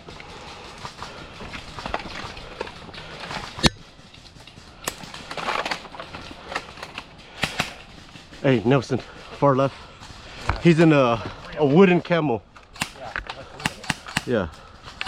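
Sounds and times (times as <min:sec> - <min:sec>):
rustling in dry undergrowth: 0:00.0 - 0:15.0
sharp cracks: 0:04.8 - 0:08.1, 0:12.5 - 0:15.0.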